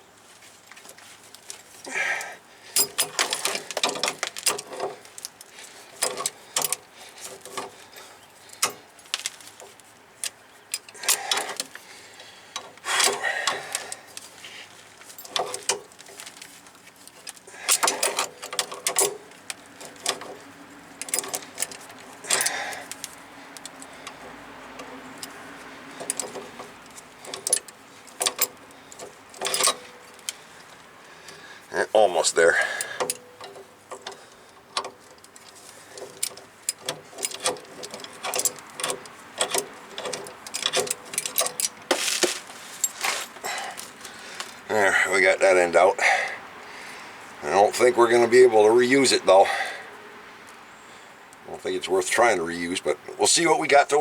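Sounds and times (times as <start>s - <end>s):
wrenches clinking on metal fitting: 2.8s - 8.9s, 10.2s - 11.7s, 15.0s - 16.0s, 17.2s - 20.4s, 21.0s - 30.4s, 32.1s - 44.0s
metal clanks: 23.8s - 30.4s, 32.5s - 43.9s.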